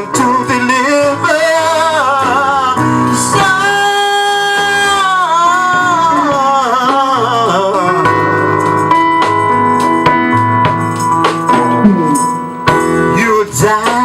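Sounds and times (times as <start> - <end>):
person singing gospel: 0.0 - 8.6, 13.0 - 14.0
instrumental accompaniment: 0.0 - 14.0.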